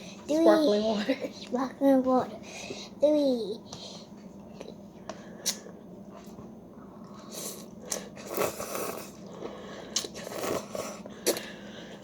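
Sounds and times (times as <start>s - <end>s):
slurping noodle soup: 7.0s - 11.9s.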